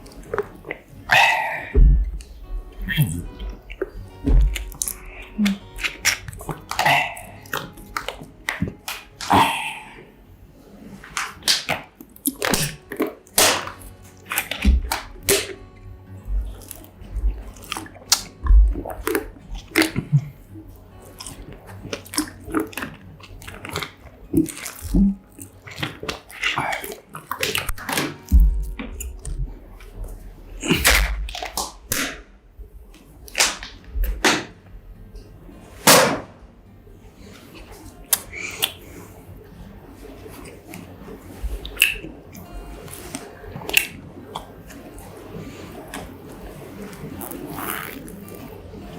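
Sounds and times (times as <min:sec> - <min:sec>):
close chewing and biting: 0:00.0 - 0:09.6, 0:11.1 - 0:15.6, 0:16.3 - 0:32.2, 0:37.5 - 0:39.1, 0:41.5 - 0:44.9
low thuds: 0:01.7 - 0:04.8, 0:16.2 - 0:16.6, 0:18.4 - 0:19.2, 0:28.3 - 0:29.7.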